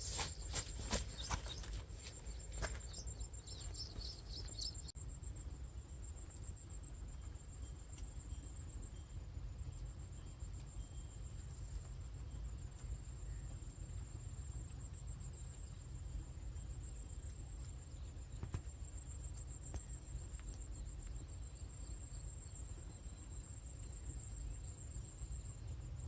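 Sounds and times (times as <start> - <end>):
birds chirping: 0.0 - 4.9
insects trilling: 0.0 - 26.0
low steady rumble: 0.0 - 26.0.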